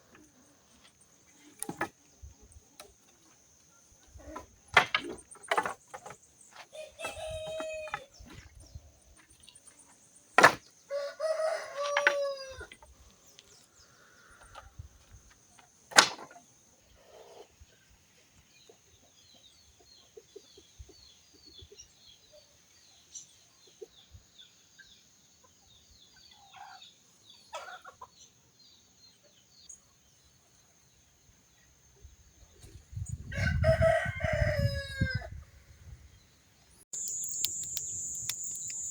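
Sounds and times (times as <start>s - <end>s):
rooster crowing: 10.9s - 12.7s, 33.3s - 35.4s.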